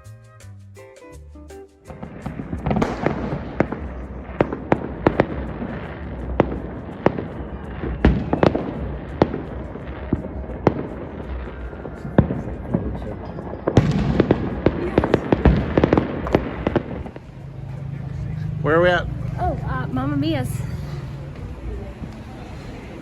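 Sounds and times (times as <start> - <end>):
fireworks crackling: 0.9 - 23.0
fireworks bangs: 1.9 - 17.9.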